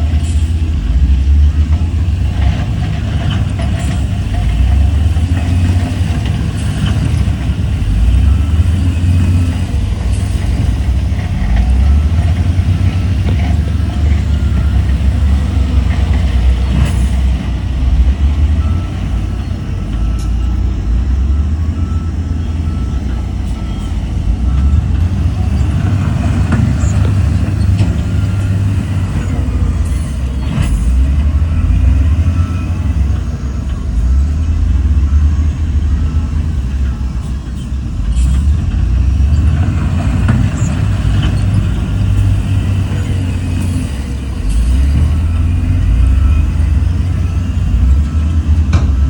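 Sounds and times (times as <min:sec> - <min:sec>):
heavy machinery engine rumbling: 0:00.0 - 0:49.0
faint beeping: 0:01.4 - 0:38.4.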